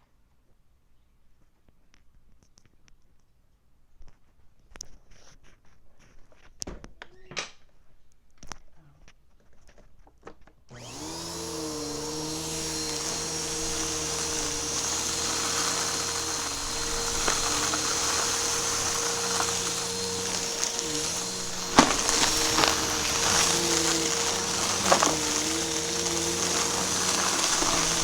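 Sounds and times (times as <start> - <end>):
vacuum cleaner running: 10.7 - 28.0.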